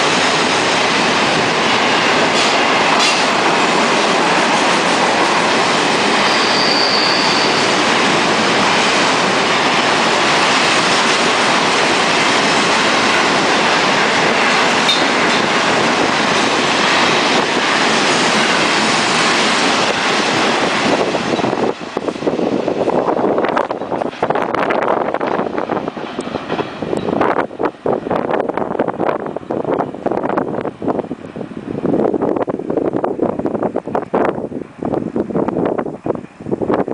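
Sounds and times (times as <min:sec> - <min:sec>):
train wheels rushing on rail: 0:00.0 - 0:36.9
high wheel squeal: 0:06.2 - 0:07.8.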